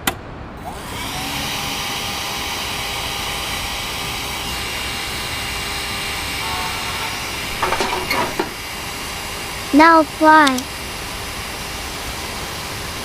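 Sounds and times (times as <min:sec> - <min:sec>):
small motor whirring: 0:00.6 - 0:07.6
short knocks: 0:07.5 - 0:08.6.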